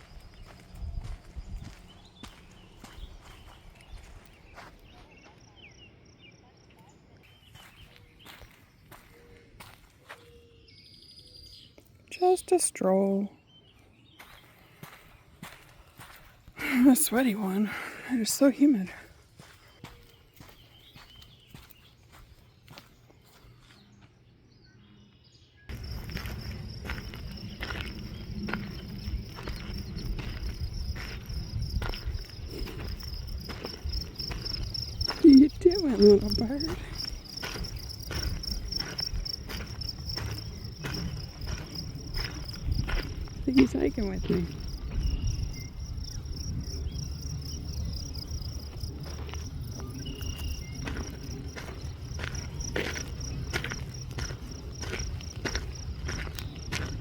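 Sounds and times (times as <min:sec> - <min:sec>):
footsteps on a hiking trail: 0:00.0 - 0:05.7, 0:06.7 - 0:12.0, 0:13.6 - 0:57.0
high insect chorus: 0:25.7 - 0:57.0.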